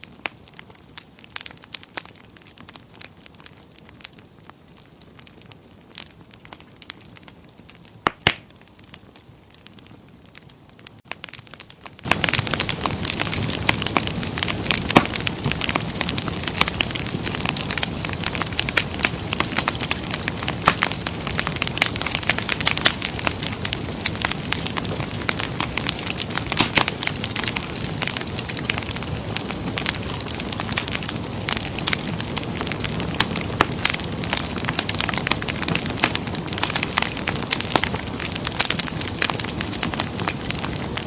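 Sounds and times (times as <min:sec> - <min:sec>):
wood fire crackling and popping: 0:00.0 - 0:41.0.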